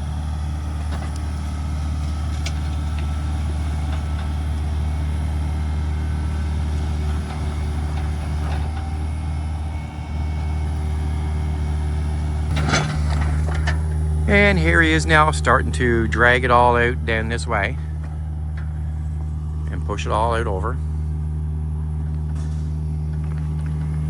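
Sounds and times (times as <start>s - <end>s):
heavy diesel engine running: 0.0s - 24.0s
short clatter: 12.5s - 14.0s.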